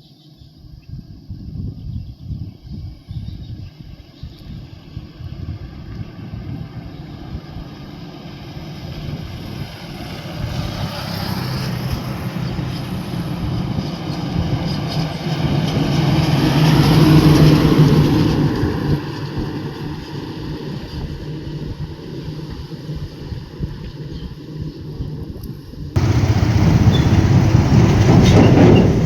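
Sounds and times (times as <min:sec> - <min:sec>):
heavy truck engine hum: 0:08.2 - 0:19.3, 0:26.0 - 0:29.0.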